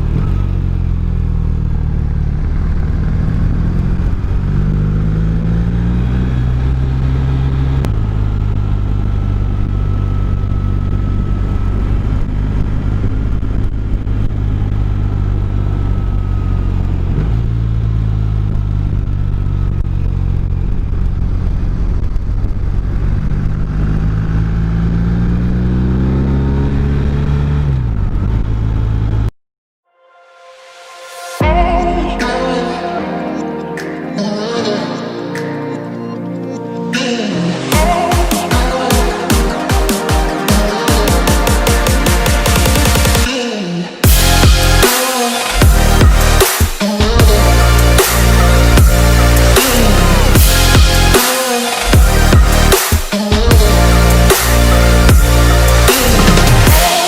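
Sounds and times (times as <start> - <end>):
motorcycle engine accelerating: 0.0 - 29.3, 53.4 - 57.0.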